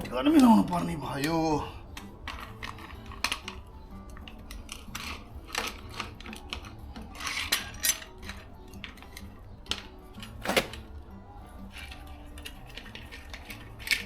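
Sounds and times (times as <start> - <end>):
car jack metal clinks: 10.3 - 10.9.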